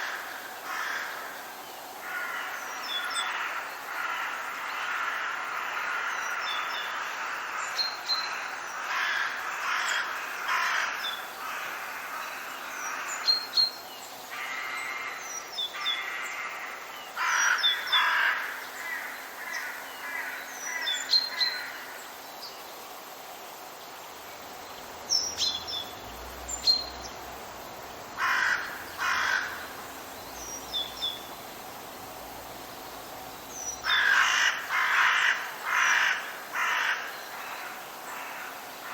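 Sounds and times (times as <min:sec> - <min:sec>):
small birds chirping: 0:16.9 - 0:35.7
birds making harsh calls: 0:28.2 - 0:38.9.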